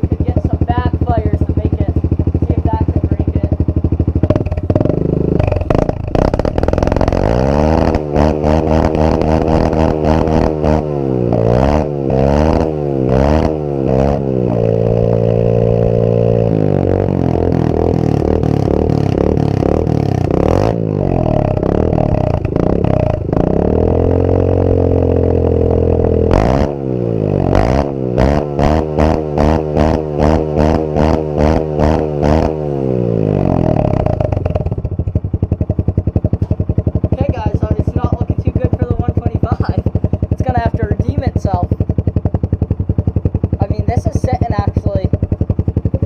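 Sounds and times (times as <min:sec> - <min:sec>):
motorcycle engine revving: 0:00.0 - 0:46.0
sharp engine pops: 0:04.2 - 0:08.0.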